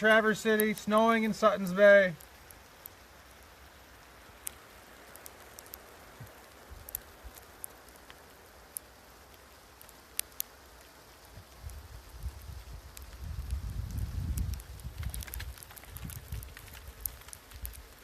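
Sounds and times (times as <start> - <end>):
hiss of falling snow: 0.0 - 18.0
low wind rumble: 11.2 - 18.0
sharp ticks: 11.6 - 17.9.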